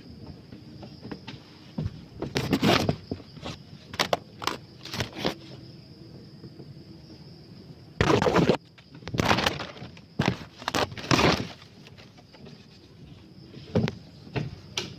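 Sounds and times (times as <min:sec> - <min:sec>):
dry leaves and twigs crackling: 0:08.0 - 0:13.1.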